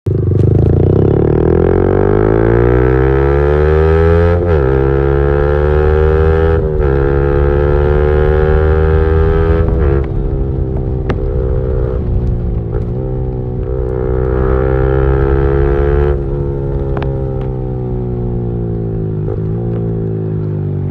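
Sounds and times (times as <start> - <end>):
motorcycle engine accelerating: 0.1 - 20.9.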